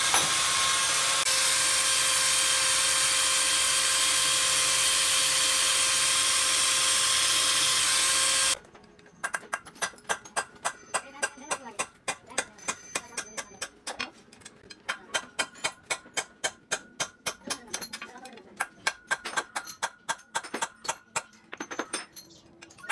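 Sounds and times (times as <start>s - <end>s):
power tool whining: 0.0s - 8.6s.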